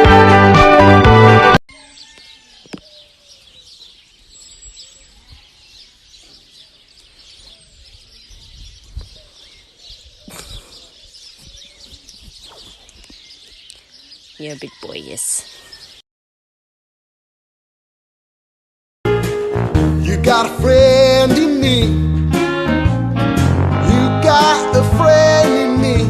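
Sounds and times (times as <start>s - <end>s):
faint bird chirps: 1.7s - 16.0s.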